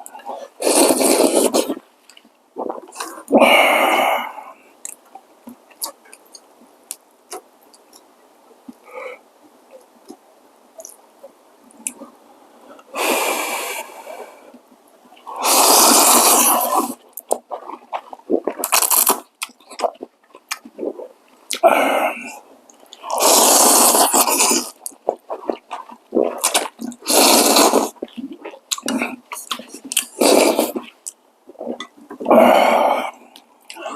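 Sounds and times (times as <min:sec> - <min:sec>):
slurping noodles: 0:00.0 - 0:01.8, 0:15.2 - 0:31.0
wet mouth clicks: 0:00.0 - 0:03.4, 0:05.7 - 0:08.1, 0:10.8 - 0:11.0, 0:15.2 - 0:21.6, 0:22.7 - 0:32.3
chewing noises: 0:15.2 - 0:21.6, 0:22.7 - 0:32.4.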